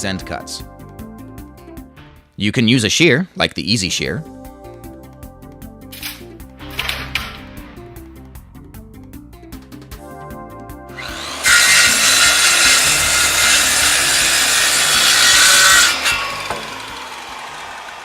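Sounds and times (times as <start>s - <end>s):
quiet background music: 0.0s - 16.4s
power saw cutting floorboard: 10.9s - 18.0s.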